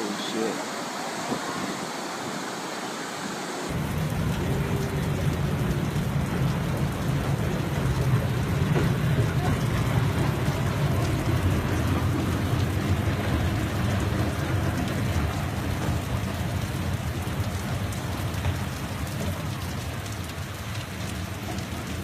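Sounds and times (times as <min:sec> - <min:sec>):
heavy rain falling: 0:00.0 - 0:22.0
low rumble: 0:03.7 - 0:18.8.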